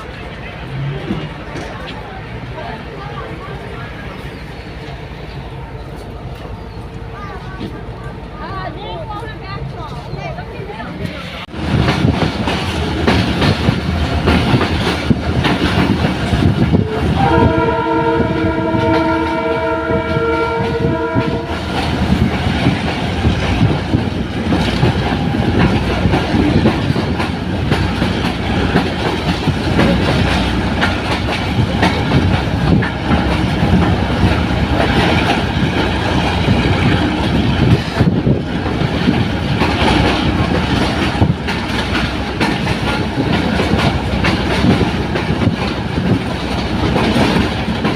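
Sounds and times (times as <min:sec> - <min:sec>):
train rumbling on rails: 0:00.0 - 0:47.9
locomotive horn blast: 0:16.8 - 0:21.7.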